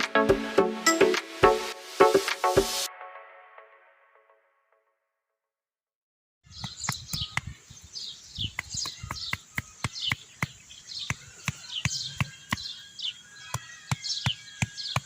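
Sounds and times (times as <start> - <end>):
small birds chirping: 6.4 - 15.0.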